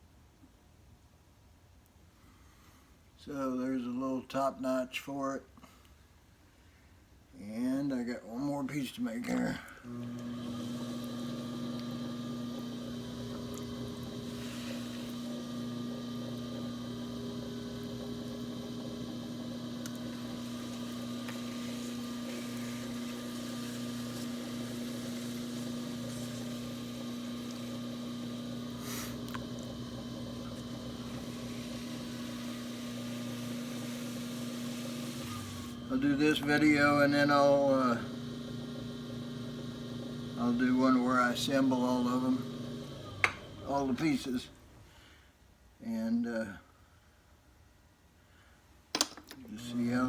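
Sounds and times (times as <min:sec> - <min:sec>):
potter's wheel humming: 0:09.8 - 0:44.6, 0:49.6 - 0:50.0.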